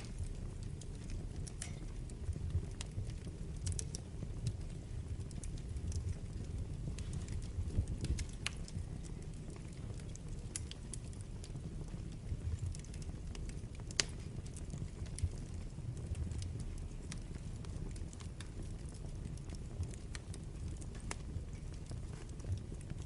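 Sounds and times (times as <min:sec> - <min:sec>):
burning logs crackling and popping: 0:00.0 - 0:23.0
wood fire flames rumbling: 0:00.0 - 0:23.0.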